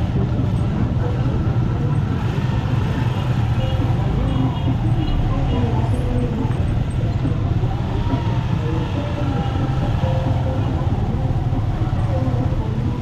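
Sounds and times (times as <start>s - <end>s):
motorcycle engine running: 0.0s - 13.0s
voices: 0.0s - 13.0s.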